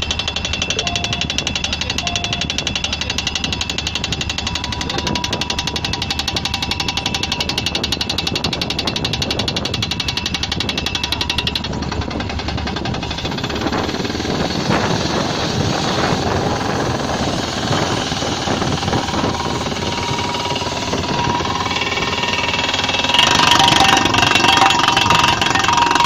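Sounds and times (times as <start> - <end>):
engine running: 0.0 - 26.0
pneumatic drill hammering: 0.0 - 26.0.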